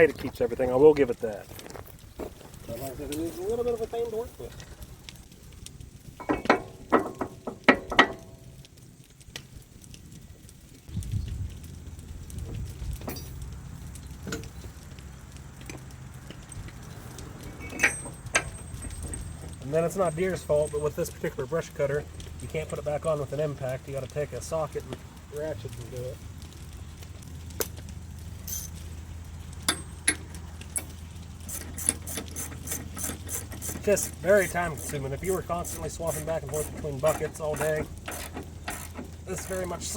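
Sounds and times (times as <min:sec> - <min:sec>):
metal-on-metal clanks: 0:06.2 - 0:08.5, 0:13.0 - 0:13.4, 0:17.4 - 0:19.6, 0:29.6 - 0:35.0, 0:35.6 - 0:39.9.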